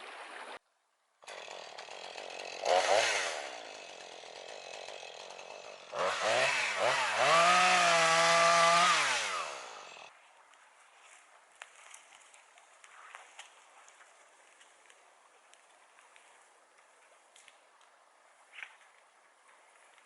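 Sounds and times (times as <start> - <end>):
chainsaw revving: 1.2 - 10.1.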